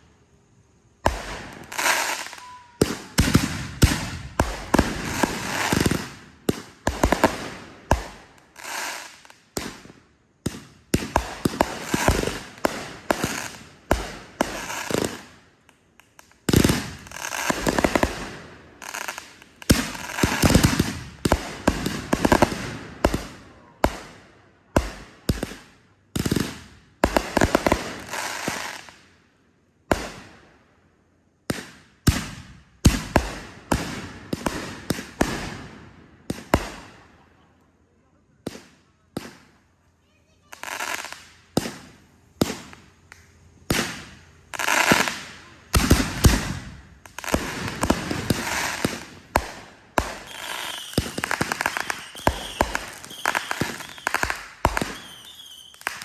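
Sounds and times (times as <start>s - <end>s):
fireworks banging: 1.0s - 15.4s, 16.0s - 24.2s, 40.4s - 56.0s.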